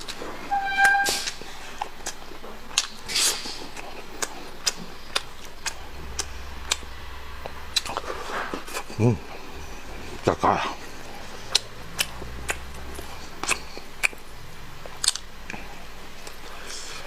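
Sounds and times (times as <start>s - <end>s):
noisy bursts: 0.0s - 17.0s
short pitched sound: 0.2s - 1.7s, 5.4s - 16.3s
person chewing food: 1.2s - 6.8s, 11.4s - 14.2s, 14.8s - 17.0s
wet mouth clicks: 11.5s - 14.2s, 14.8s - 15.6s.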